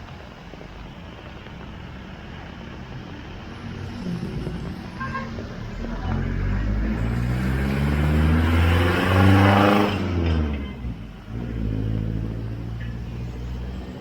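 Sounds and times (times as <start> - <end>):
engine accelerating past: 3.4 - 14.0.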